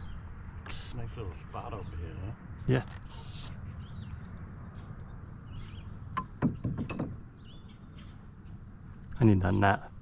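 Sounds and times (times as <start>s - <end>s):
faint bird chirps: 0.0s - 10.0s
low wind rumble: 0.0s - 10.0s
knocks: 6.2s - 7.2s.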